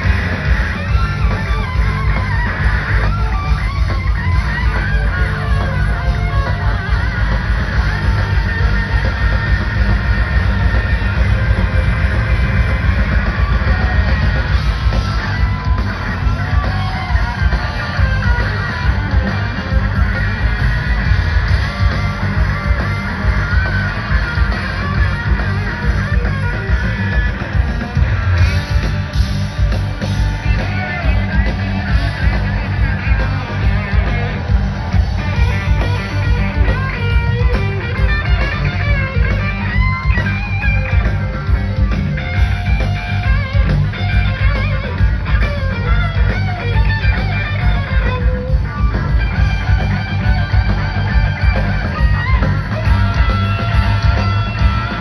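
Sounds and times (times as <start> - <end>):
bass guitar: 0.0 - 55.0
drums: 0.0 - 55.0
electric guitar lead: 0.0 - 55.0.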